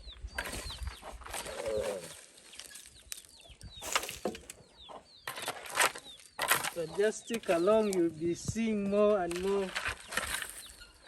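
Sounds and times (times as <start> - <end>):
chicks peeping: 0.0 - 3.8, 4.4 - 8.6
hen clucking: 4.6 - 6.2.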